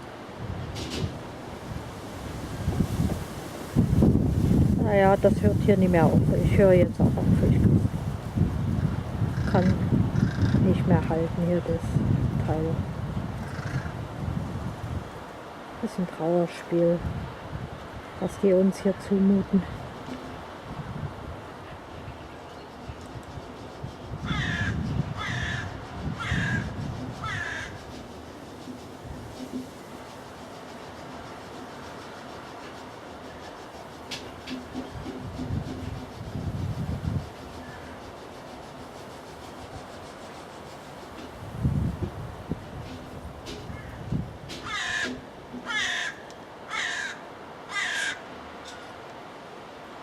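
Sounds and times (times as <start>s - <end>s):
bird calling: 9.3s - 10.6s, 13.4s - 14.0s, 22.2s - 30.2s
crow cawing: 9.3s - 10.6s, 13.4s - 14.0s, 24.2s - 27.8s, 44.6s - 48.3s.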